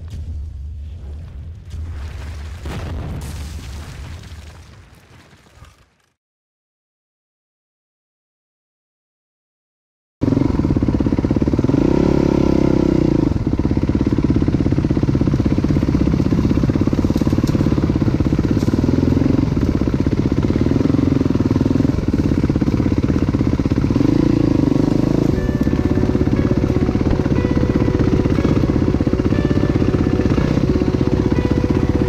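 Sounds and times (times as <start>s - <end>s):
dirt bike engine revving: 10.2s - 32.0s.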